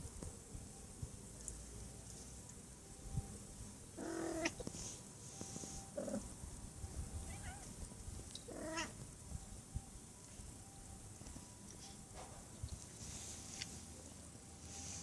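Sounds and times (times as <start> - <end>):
cat meowing: 4.0 - 4.6, 7.2 - 7.8, 8.5 - 9.0.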